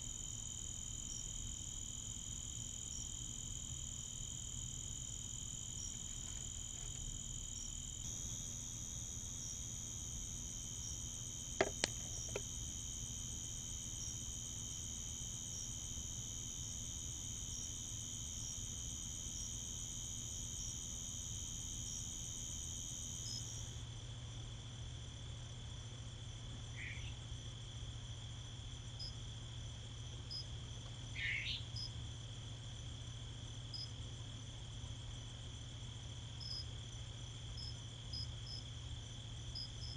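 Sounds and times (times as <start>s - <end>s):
insects trilling: 0.0s - 23.8s
short insect chirp: 0.0s - 23.8s.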